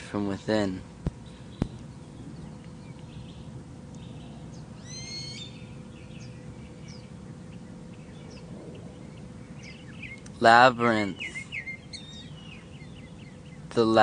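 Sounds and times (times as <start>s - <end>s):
low steady rumble: 0.0s - 14.0s
birds chirping: 0.2s - 14.0s
rising bird call: 4.0s - 10.3s.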